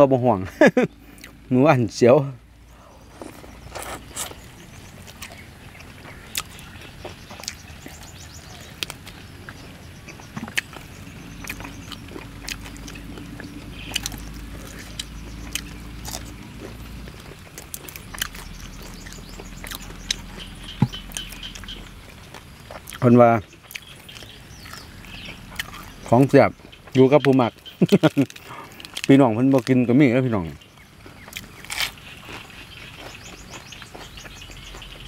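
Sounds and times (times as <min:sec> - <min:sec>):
chewing crunchy food: 0:02.8 - 0:35.0
meat tearing crackles: 0:31.2 - 0:33.1.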